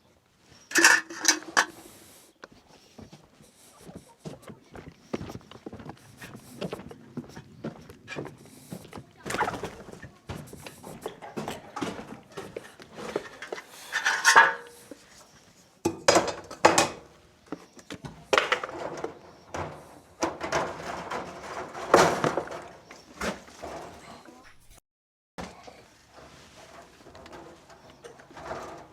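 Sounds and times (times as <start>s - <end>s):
hard objects clattering and knocking: 0.7s - 2.0s, 9.2s - 15.0s, 15.9s - 17.1s, 18.0s - 24.2s.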